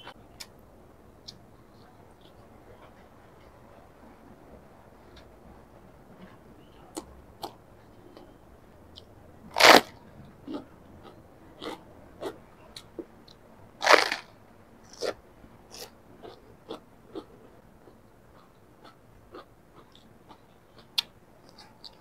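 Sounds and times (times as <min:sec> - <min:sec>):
cabbage leaf crunching: 0:09.6 - 0:09.9, 0:13.8 - 0:14.3.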